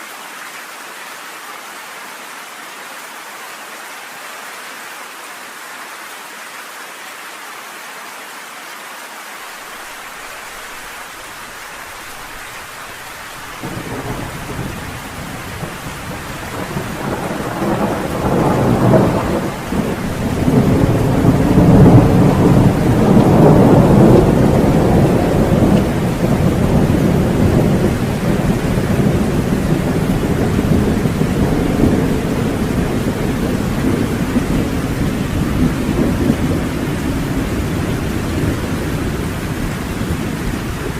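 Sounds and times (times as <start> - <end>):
steady rain hissing: 0.0 - 40.9
thunder rolling: 13.4 - 40.9.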